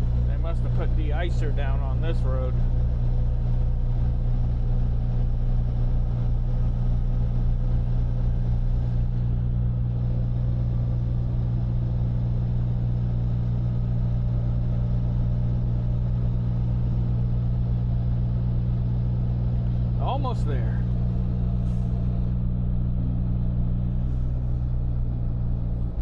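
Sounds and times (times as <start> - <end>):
truck diesel engine droning: 0.0 - 26.0.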